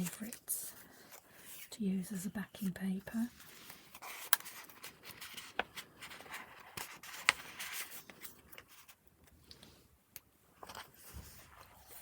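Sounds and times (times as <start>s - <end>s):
paper pages rustling: 0.0s - 1.7s, 3.0s - 9.0s, 10.6s - 12.0s.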